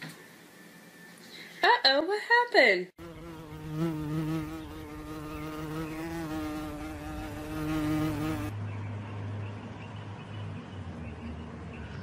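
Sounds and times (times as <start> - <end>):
flying insect buzzing: 3.0 - 8.5.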